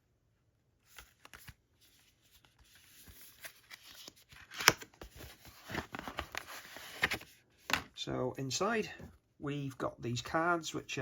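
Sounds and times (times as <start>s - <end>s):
paper rustling: 0.8s - 7.8s.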